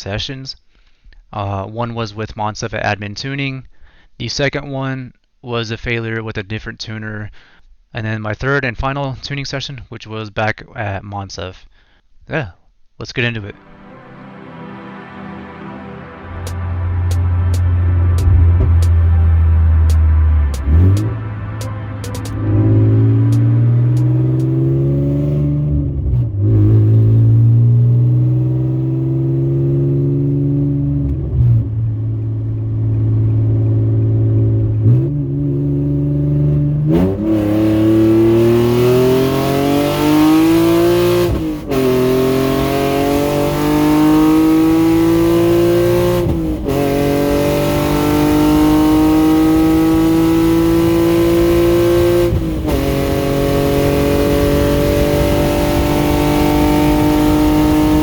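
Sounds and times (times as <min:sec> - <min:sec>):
loud car exhaust revving: 0:16.2 - 0:58.0
engine note climbing through gearshifts: 0:16.3 - 0:58.0.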